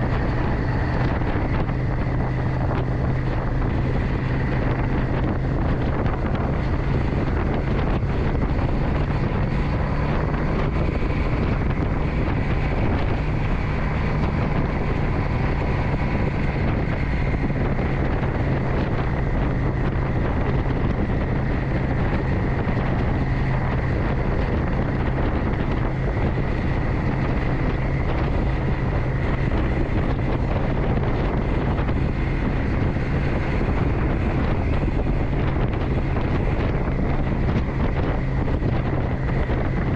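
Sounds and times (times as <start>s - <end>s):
motorcycle engine running: 0.0s - 39.9s
wind buffeting microphone: 0.0s - 39.9s.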